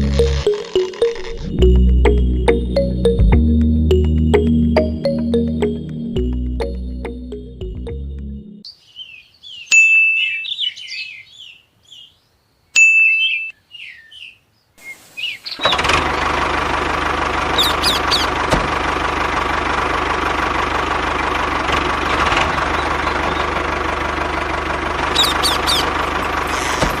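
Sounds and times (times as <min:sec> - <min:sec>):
birds chirping: 0:08.6 - 0:16.4, 0:17.5 - 0:18.4, 0:22.5 - 0:23.7, 0:25.0 - 0:27.0
small engine humming: 0:15.6 - 0:27.0.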